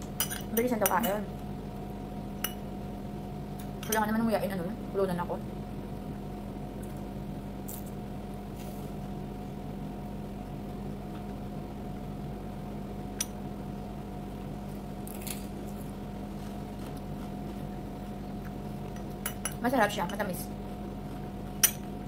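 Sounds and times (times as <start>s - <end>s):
steady low hum: 0.0s - 22.0s
person chewing crunchy vegetables: 15.0s - 17.8s.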